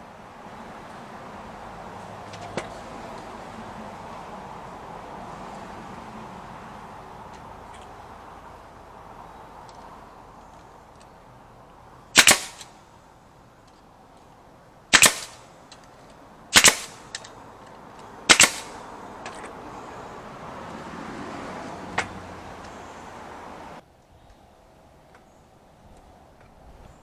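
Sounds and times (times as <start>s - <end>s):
sharp loud cracks: 12.1s - 12.8s, 14.9s - 15.9s, 16.5s - 17.4s, 18.0s - 19.5s.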